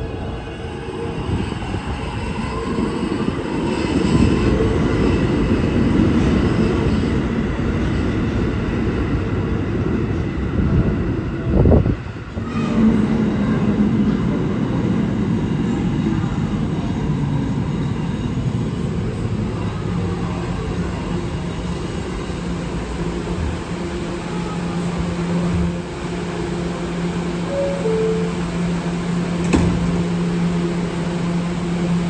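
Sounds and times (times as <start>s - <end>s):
subway train rumbling: 0.0s - 32.0s
loud knock: 29.4s - 30.1s.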